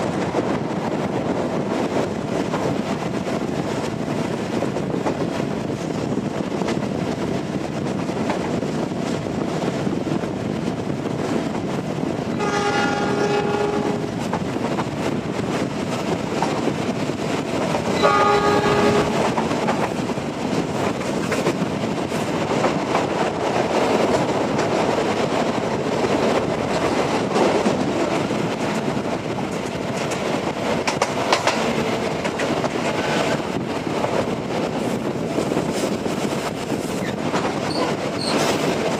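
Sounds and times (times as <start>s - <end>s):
wheels rumbling on rails: 0.0s - 38.9s
train horn: 12.3s - 14.2s, 17.9s - 19.3s.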